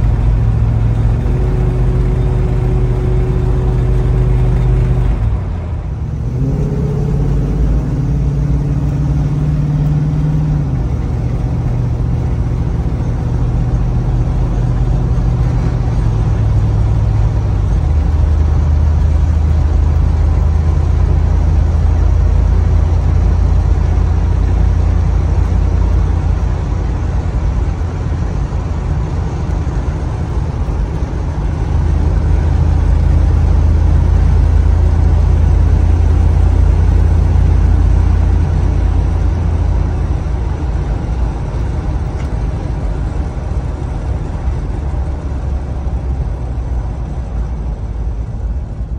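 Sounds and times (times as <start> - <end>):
car engine droning: 0.0 - 48.9
road noise: 0.0 - 48.9.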